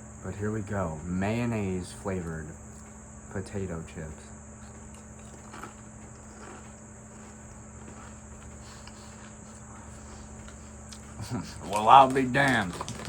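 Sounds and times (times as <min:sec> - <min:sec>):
potato chip chewing: 0:04.6 - 0:13.0.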